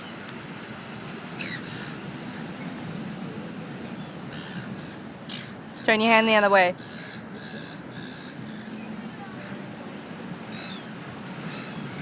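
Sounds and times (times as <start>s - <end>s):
outdoor background hiss: 0.0s - 12.0s
seagulls calling: 1.4s - 2.0s, 4.0s - 5.5s, 6.8s - 9.6s, 10.4s - 12.0s.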